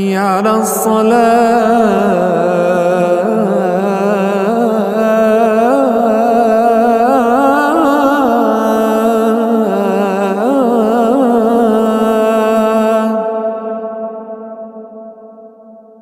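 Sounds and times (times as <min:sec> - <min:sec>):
man chanting call to prayer: 0:00.0 - 0:14.0.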